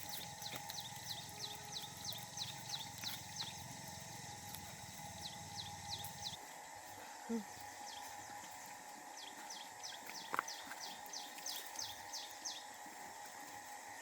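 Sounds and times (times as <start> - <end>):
bird chirping: 0.0 - 4.3, 4.9 - 6.4, 9.1 - 12.8
faint steady hum: 0.0 - 14.0.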